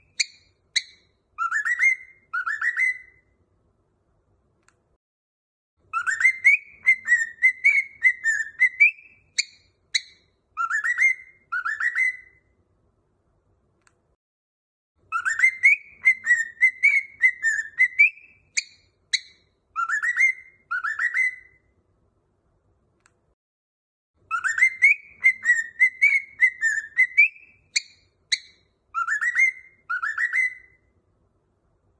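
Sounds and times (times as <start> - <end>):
cockatiel whistling: 0.0 - 3.3, 5.9 - 12.5, 15.1 - 21.7, 24.3 - 30.9.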